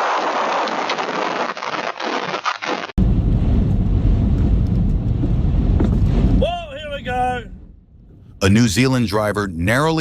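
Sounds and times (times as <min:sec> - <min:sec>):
strong gusting wind: 0:03.0 - 0:08.4.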